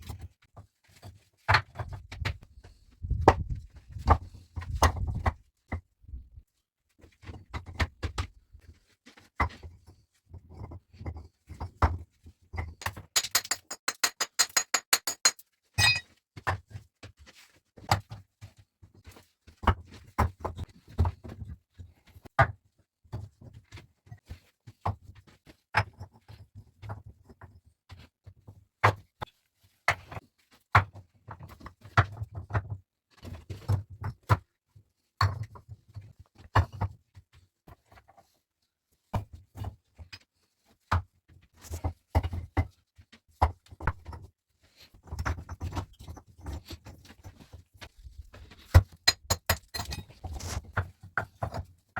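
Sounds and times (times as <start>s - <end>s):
objects knocking and thudding: 10.4s - 16.6s, 43.4s - 44.3s, 45.0s - 51.7s.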